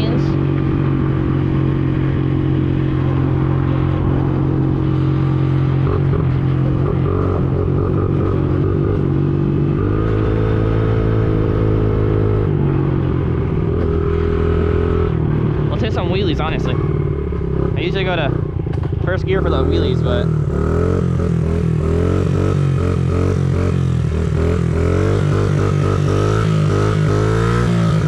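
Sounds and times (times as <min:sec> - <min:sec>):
rumble of wind and road: 0:00.0 - 0:28.0.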